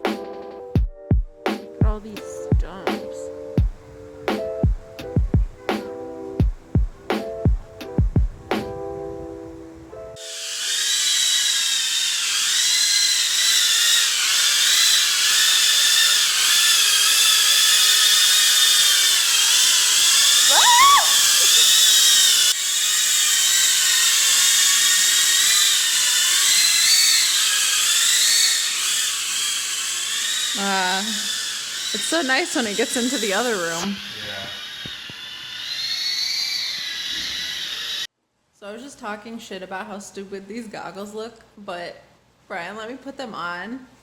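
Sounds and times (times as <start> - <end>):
drone propellers whining: 7.0 - 38.1.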